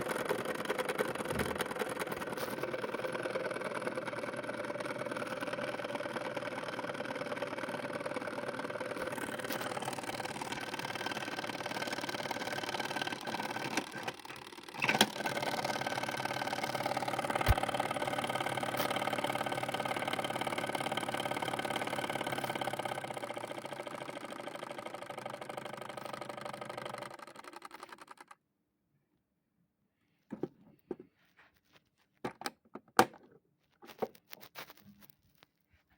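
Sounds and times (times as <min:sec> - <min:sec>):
washing machine motor hum: 0:00.0 - 0:27.8.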